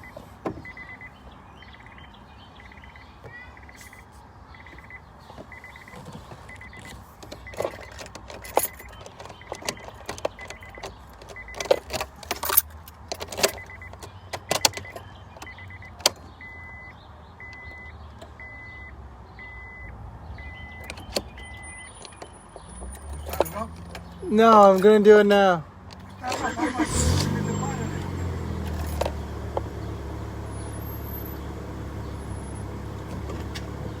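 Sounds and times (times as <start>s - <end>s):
car warning chime beeping: 0.0s - 12.6s, 13.4s - 25.4s, 26.2s - 34.0s
keys clicking and rattling: 4.8s - 16.3s, 28.6s - 29.2s.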